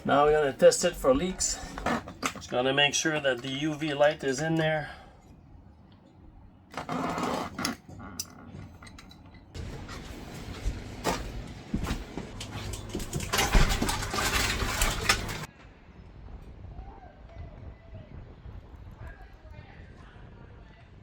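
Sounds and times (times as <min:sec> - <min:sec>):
hard plastic parts clattering: 0:08.6 - 0:15.5.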